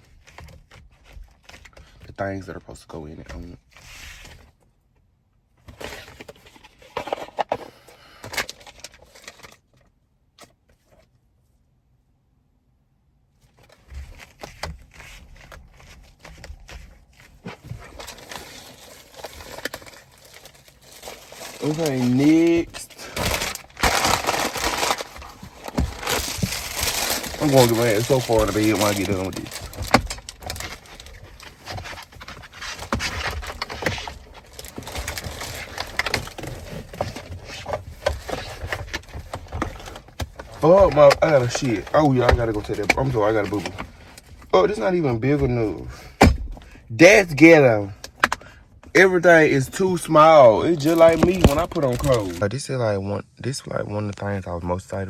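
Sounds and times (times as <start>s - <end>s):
plastic rustling: 13.4s - 52.4s.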